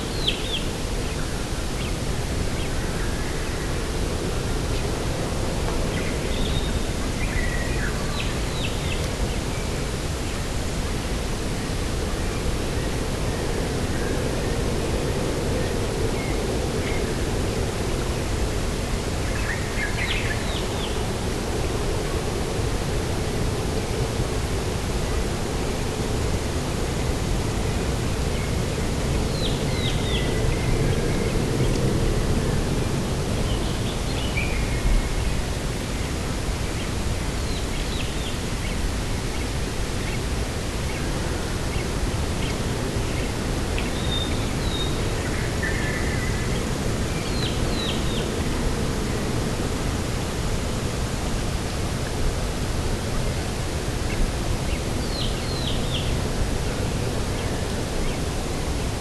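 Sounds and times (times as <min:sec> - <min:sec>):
sea rushing: 0:00.8 - 0:59.0.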